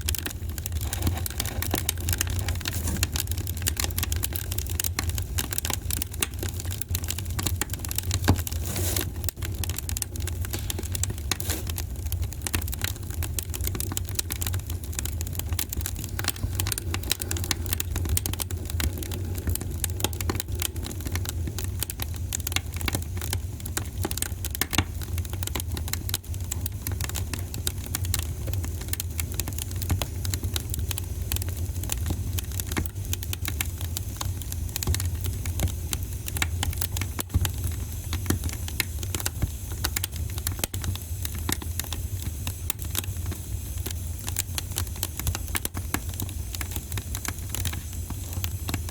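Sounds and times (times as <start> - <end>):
wood fire crackling: 0.0 - 48.9.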